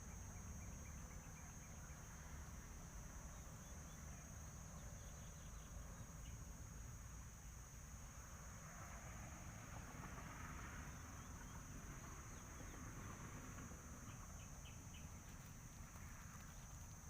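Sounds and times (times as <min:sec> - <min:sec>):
faint bird chirps: 0:03.3 - 0:06.4.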